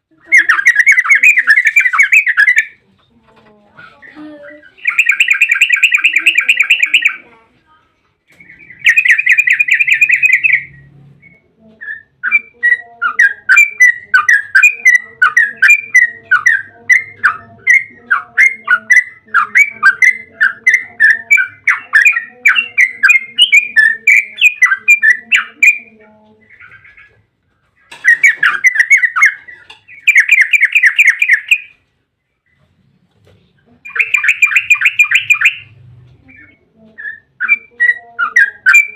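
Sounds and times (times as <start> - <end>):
bird singing chattering notes: 0.2 - 2.8, 4.0 - 7.4, 8.3 - 27.2, 27.8 - 31.8, 33.8 - 38.9.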